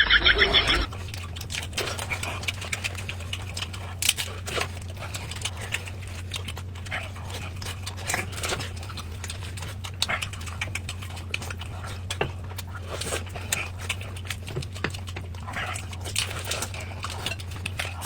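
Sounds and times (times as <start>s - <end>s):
low hum: 0.0s - 1.0s
wet chewing and lip-smacking: 0.0s - 18.0s.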